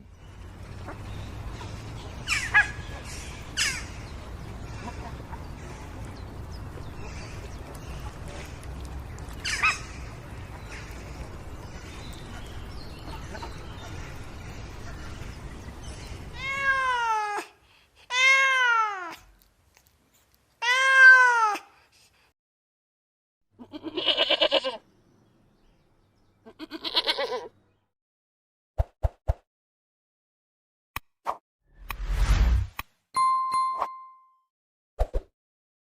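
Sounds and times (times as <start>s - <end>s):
goat bleating: 23.6s - 24.8s, 26.4s - 27.5s.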